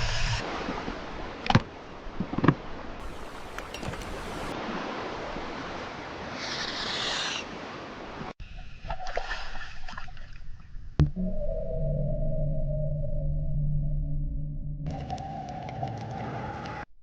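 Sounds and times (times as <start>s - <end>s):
ocean water washing: 0.0s - 8.4s.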